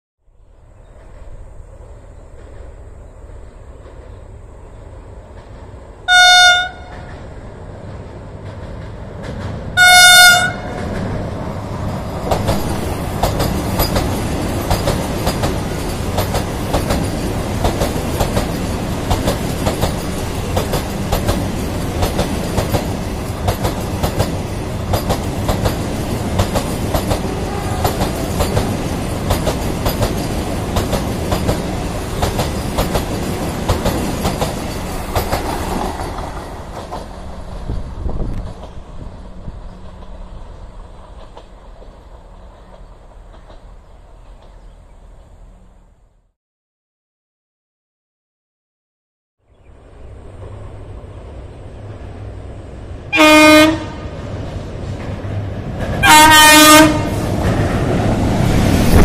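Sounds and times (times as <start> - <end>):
train rumbling past: 0.3 - 46.4, 49.4 - 59.0
train horn blasts: 6.1 - 7.1, 9.8 - 10.8, 27.2 - 28.2, 53.1 - 54.2, 56.0 - 57.3
wheels clattering over rails: 10.5 - 38.8.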